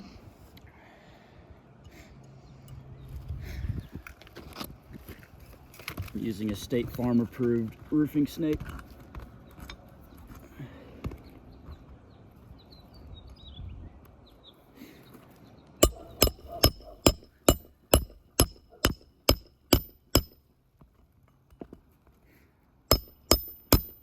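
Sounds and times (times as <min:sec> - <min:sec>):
hammer striking roofing nails: 0:15.8 - 0:20.4, 0:22.9 - 0:24.0.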